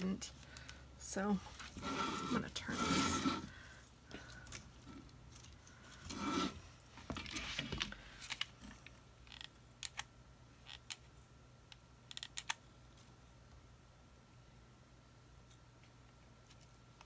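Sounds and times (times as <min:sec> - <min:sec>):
rustling and scraping of craft pieces: 0:01.2 - 0:09.4.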